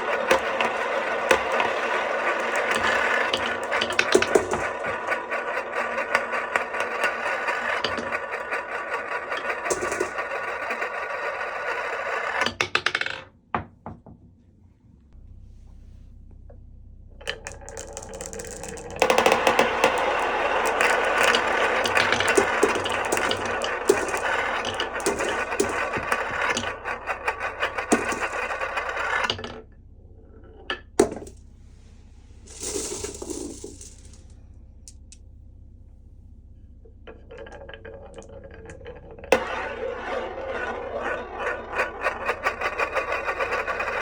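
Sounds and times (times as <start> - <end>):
glass marbles rattling down wooden run: 0.0 - 13.0, 17.5 - 29.4, 32.5 - 34.2, 37.3 - 44.0.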